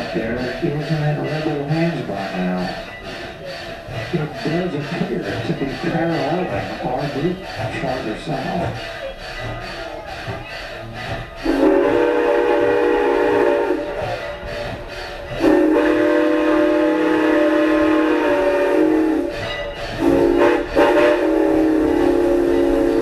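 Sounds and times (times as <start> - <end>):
moving train rumble: 0.0 - 23.0
chime train whistle blasts: 10.5 - 23.0.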